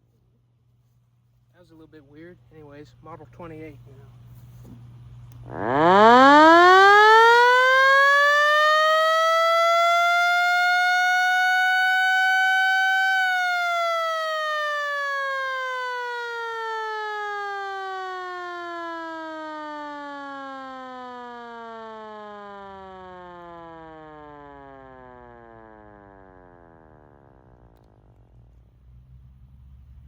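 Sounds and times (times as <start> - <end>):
electromechanical siren winding: 5.4 - 28.2.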